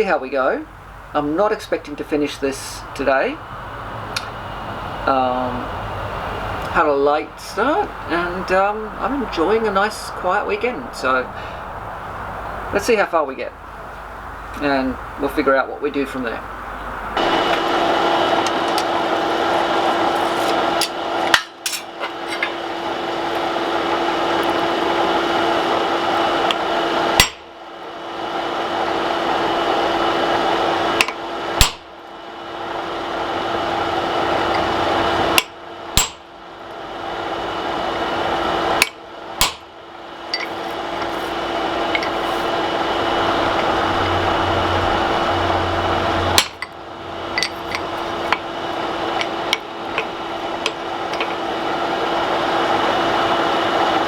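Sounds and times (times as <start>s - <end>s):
forge rushing and humming: 17.0s - 27.3s, 39.5s - 54.0s
sharp metal knocks: 35.4s - 36.2s.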